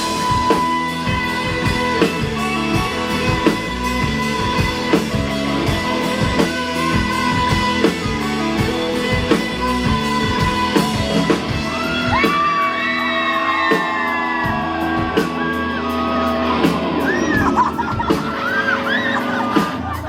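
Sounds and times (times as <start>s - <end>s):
live rock band playing: 0.0s - 20.0s
people shouting and whooping: 11.4s - 20.0s.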